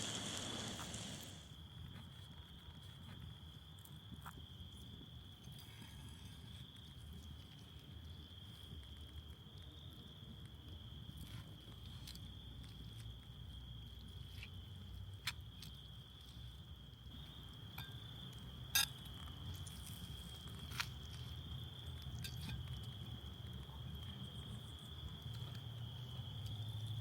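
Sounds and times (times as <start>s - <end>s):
high insect drone: 0.0s - 1.5s.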